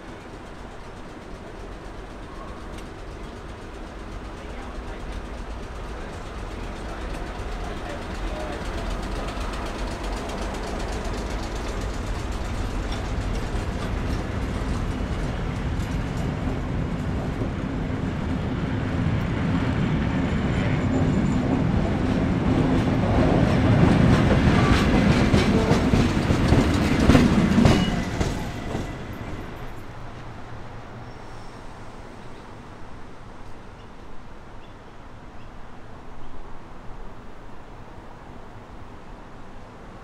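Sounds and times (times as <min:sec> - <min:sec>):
wheels clicking over rail joints: 0:00.0 - 0:17.8, 0:22.3 - 0:30.3
electric train rolling past: 0:00.0 - 0:40.0.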